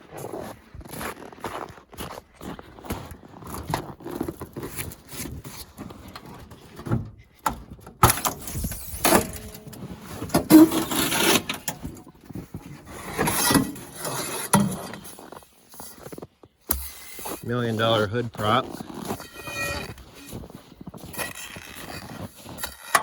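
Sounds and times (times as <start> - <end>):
clunks and rattles of truck body: 5.4 - 15.2
metallic squeak: 18.9 - 21.5.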